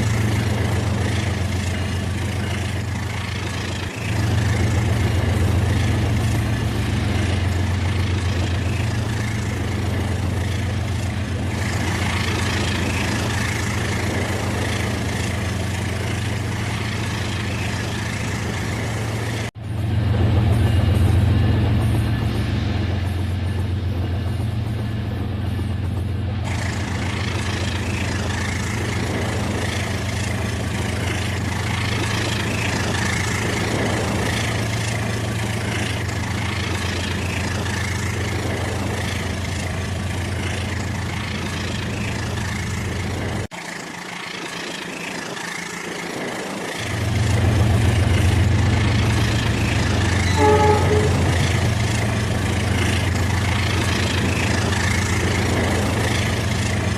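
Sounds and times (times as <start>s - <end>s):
toy train mechanical hum: 26.5s - 56.9s
short tone: 50.2s - 51.7s.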